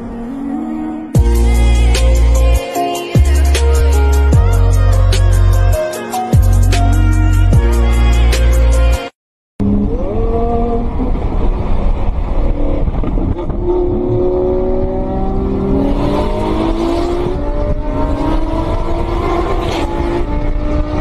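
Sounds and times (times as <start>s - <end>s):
road and wind rumble: 9.6s - 21.0s
sports car engine accelerating: 9.6s - 21.0s.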